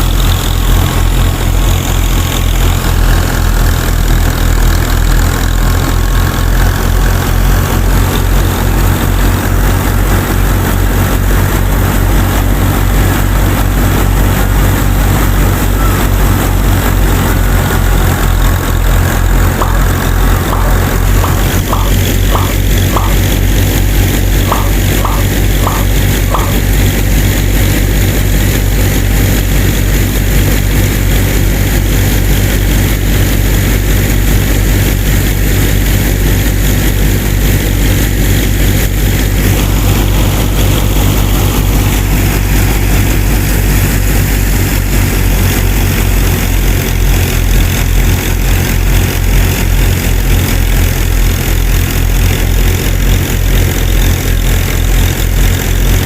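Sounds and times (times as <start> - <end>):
small engine idling: 0.0 - 56.0.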